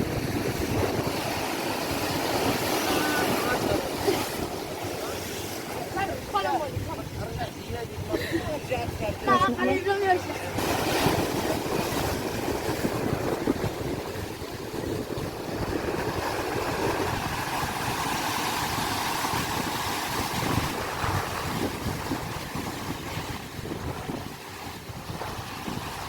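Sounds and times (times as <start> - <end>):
sea waves: 0.0 - 26.0
wind buffeting microphone: 0.0 - 26.0.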